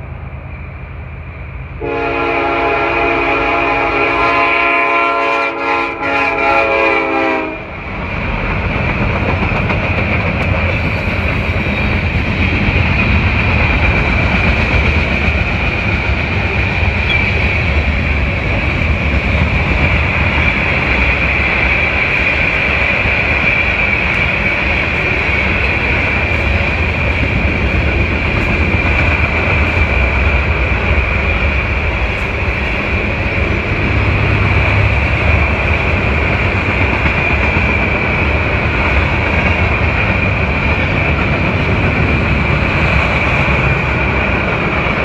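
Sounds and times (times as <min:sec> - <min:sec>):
diesel locomotives running: 0:00.0 - 0:45.0
train air horn blasts: 0:01.8 - 0:07.7.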